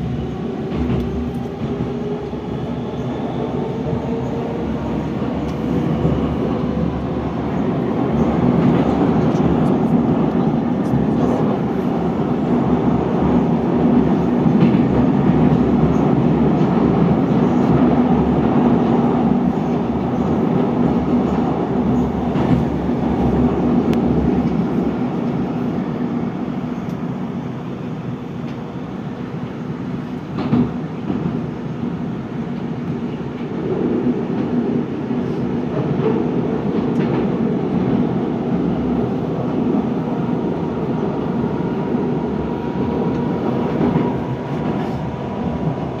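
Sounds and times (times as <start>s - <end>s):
train rumbling: 0.0s - 46.0s.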